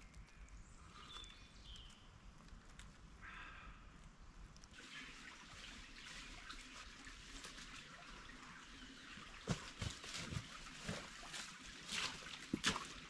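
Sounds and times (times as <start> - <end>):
small stream trickling: 4.4 - 13.0
irregular knocks and splashes: 9.1 - 13.0.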